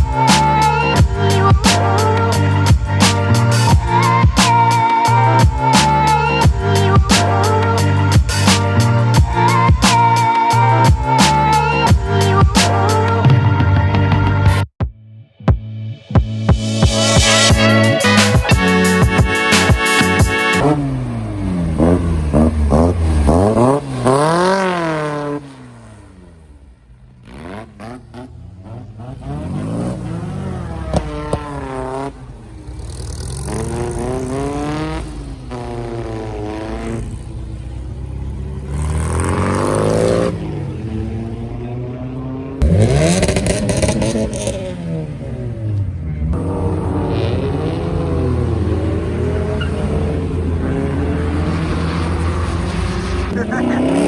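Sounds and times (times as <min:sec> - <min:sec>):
car engine revving: 0:16.5 - 0:54.0.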